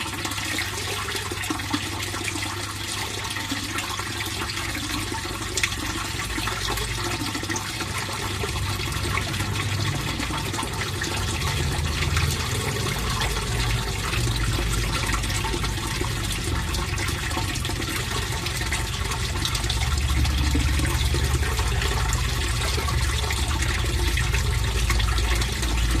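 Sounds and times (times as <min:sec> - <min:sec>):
pond water trickling: 0:00.0 - 0:26.0.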